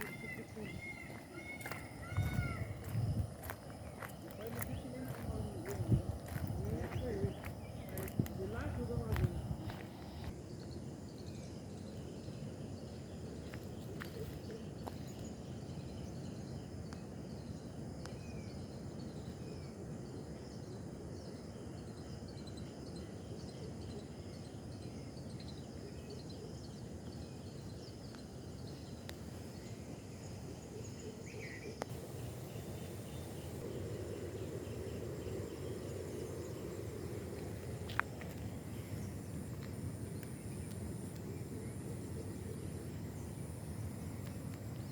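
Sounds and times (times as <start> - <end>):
faint bird chirps: 0.0 - 3.0
high insect whine: 0.0 - 44.9
steady low outdoor noise: 0.0 - 44.9.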